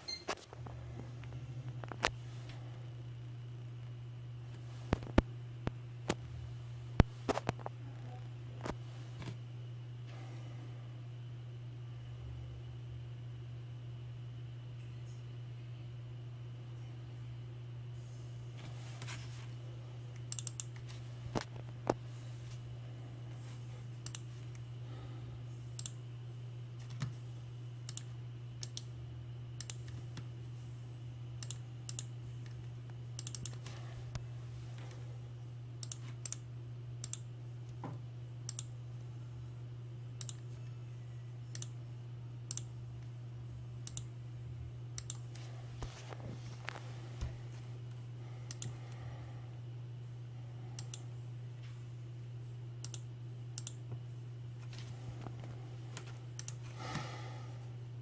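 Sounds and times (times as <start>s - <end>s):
steady low hum: 0.0s - 58.0s
keyboard and mouse clicks: 20.2s - 20.9s, 33.2s - 33.6s, 35.8s - 36.4s.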